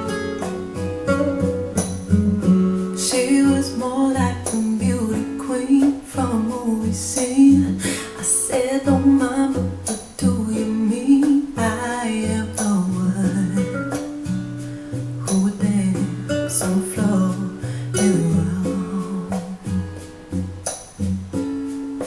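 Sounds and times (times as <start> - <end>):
plucked guitar: 0.0 - 22.0
person singing: 2.0 - 14.1, 15.2 - 19.8.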